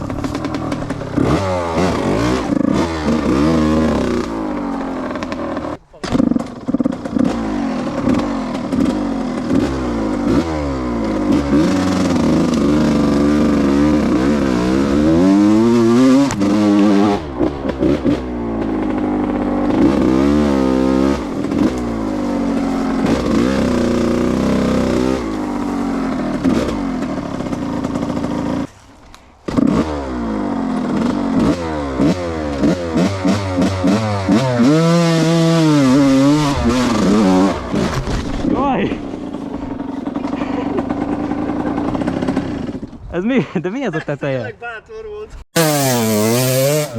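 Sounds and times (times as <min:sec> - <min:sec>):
two-stroke dirt bike revving: 0:00.0 - 0:43.5, 0:45.5 - 0:46.9.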